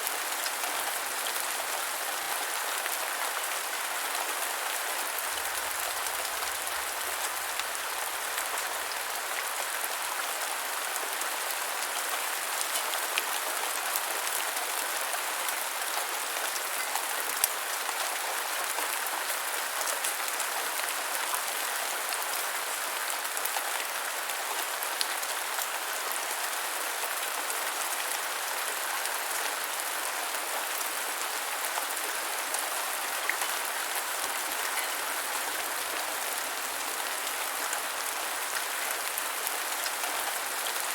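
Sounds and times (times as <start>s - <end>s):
gentle rain hissing: 30.7s - 40.9s.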